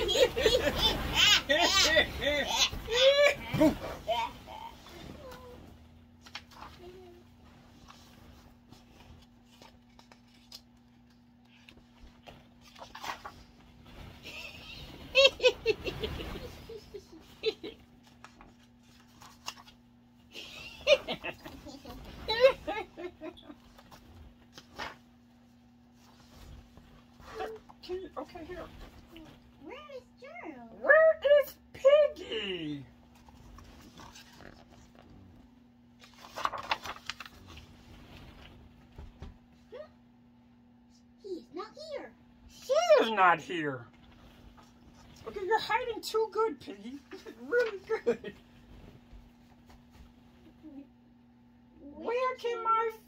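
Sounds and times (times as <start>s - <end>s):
child giggling: 0.0s - 4.6s, 20.4s - 23.6s
rustling and handling noise: 0.0s - 30.8s, 32.9s - 40.3s, 43.9s - 51.2s.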